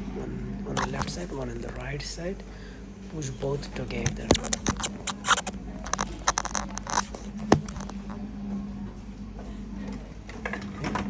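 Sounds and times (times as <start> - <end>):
plastic clicks and scraping: 0.8 - 1.2, 3.9 - 8.2.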